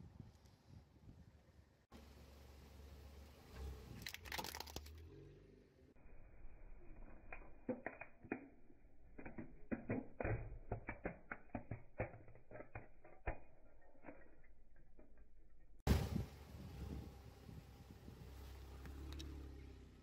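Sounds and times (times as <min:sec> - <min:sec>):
cracking and snapping while crushing: 0:04.0 - 0:05.0
loud thump: 0:15.9 - 0:16.4.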